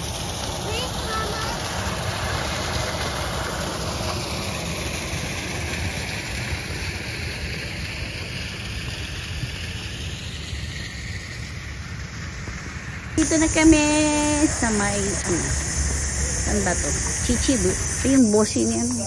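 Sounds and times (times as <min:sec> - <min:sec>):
car road noise rumble: 0:07.0 - 0:19.0.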